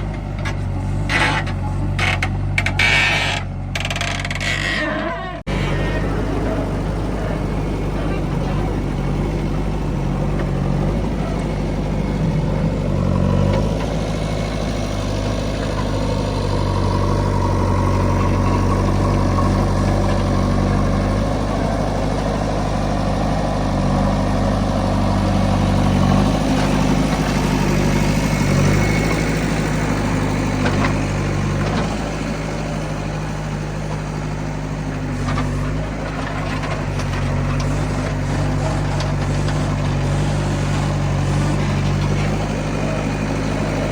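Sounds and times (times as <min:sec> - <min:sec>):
diesel engine idling: 0:00.0 - 0:04.7, 0:05.3 - 0:43.9.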